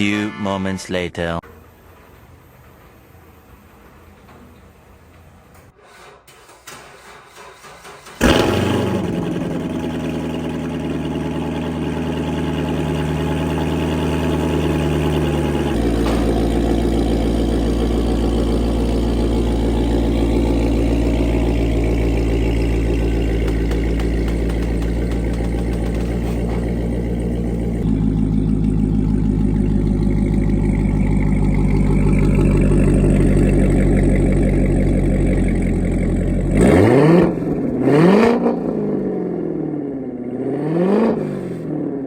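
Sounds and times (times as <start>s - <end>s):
car engine starting and idling: 1.4s - 42.0s.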